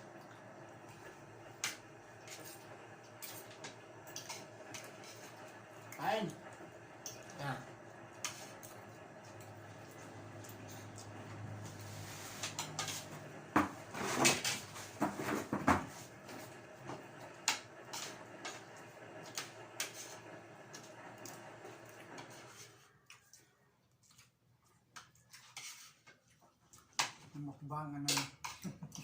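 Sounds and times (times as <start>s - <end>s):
dishes and utensils clattering: 12.4s - 15.9s.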